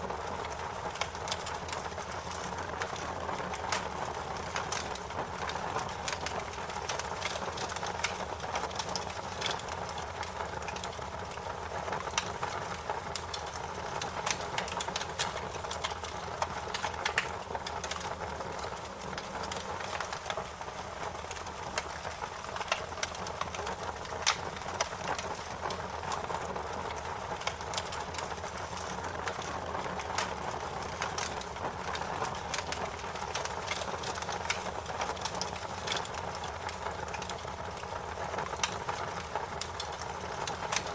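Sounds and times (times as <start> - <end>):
wood fire crackling: 0.0 - 40.9
sharp pops and snaps: 26.9 - 40.9.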